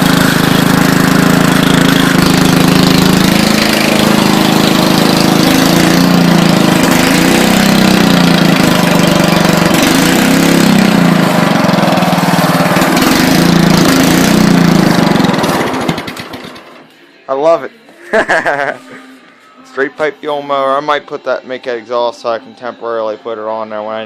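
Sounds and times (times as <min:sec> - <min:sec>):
lawn mower engine running loud: 0:00.0 - 0:16.9.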